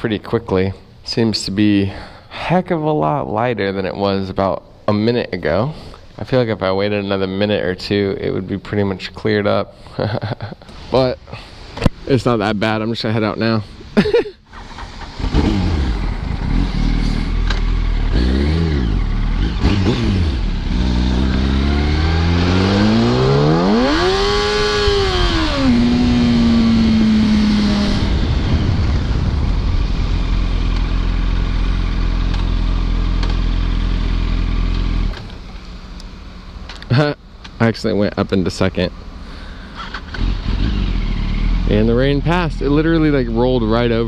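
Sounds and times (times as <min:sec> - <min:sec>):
motorcycle engine revving: 0:14.5 - 0:37.0, 0:39.1 - 0:44.0
wind noise: 0:21.5 - 0:32.1.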